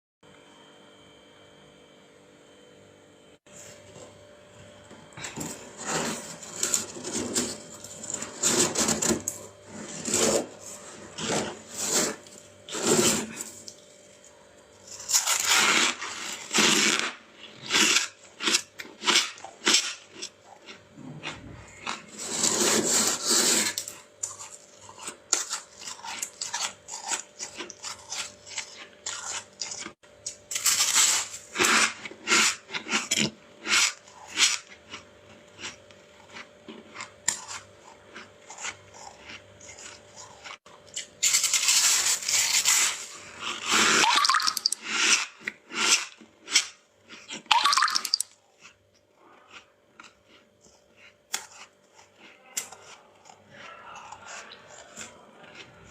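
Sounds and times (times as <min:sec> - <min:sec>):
crunching chewing frost: 0:05.2 - 0:55.9
frost scraping rasp: 0:05.4 - 0:13.6, 0:14.9 - 0:19.8, 0:21.6 - 0:29.9, 0:41.2 - 0:44.1.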